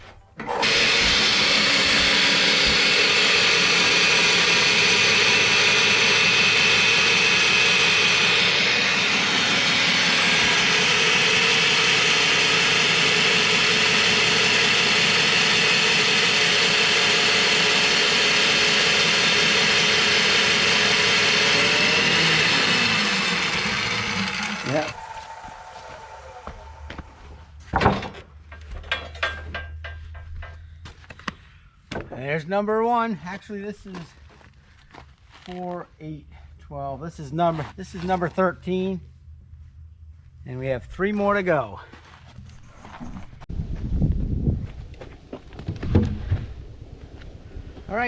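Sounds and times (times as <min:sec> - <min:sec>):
motor-driven machine running: 0:00.4 - 0:27.2.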